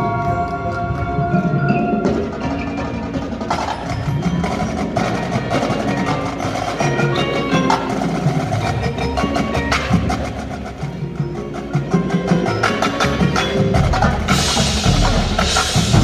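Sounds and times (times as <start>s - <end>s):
marching band playing: 0.0s - 16.0s.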